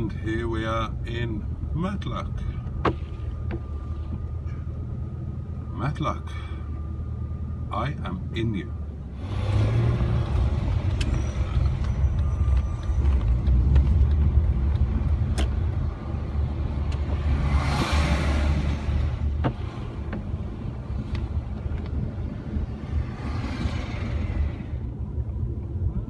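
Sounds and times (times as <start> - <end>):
car engine droning: 0.0 - 26.0
tyre noise on wet road: 9.2 - 24.8.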